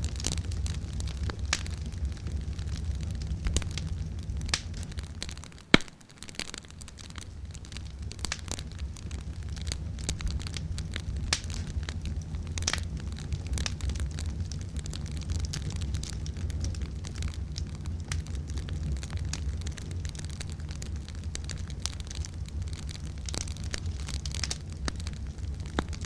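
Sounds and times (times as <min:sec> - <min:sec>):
low rumble: 0:00.0 - 0:05.7, 0:06.7 - 0:26.0
campfire crackling: 0:00.0 - 0:26.0
fire popping: 0:00.0 - 0:26.0.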